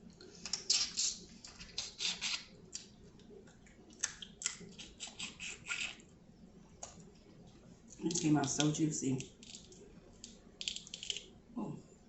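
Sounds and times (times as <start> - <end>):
wet chewing of seafood: 0.4 - 6.0.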